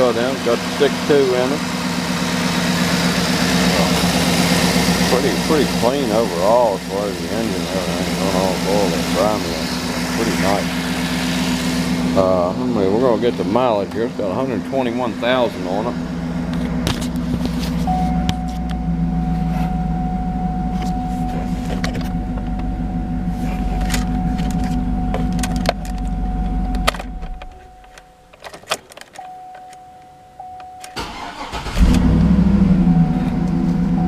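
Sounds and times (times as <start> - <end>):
engine idling: 0.0 - 27.9, 31.0 - 34.0
engine cranking and restarting: 0.6 - 12.5, 30.8 - 34.0.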